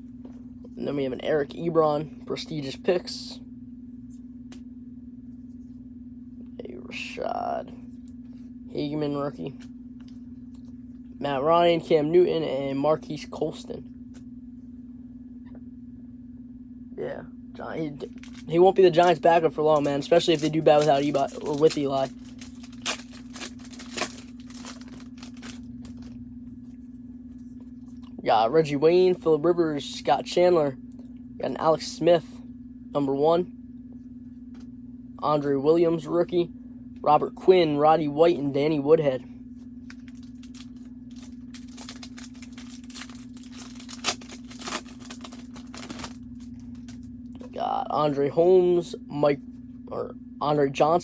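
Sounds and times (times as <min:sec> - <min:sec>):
low electrical hum: 0:00.0 - 0:51.0
wrapper tearing and crinkling: 0:18.0 - 0:26.1, 0:39.8 - 0:47.0.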